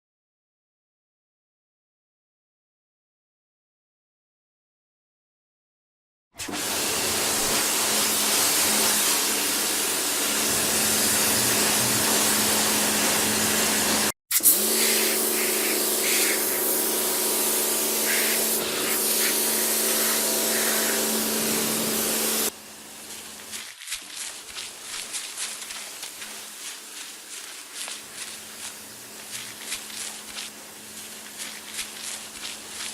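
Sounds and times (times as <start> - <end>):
high-pressure water spray hissing: 6.7 - 32.9.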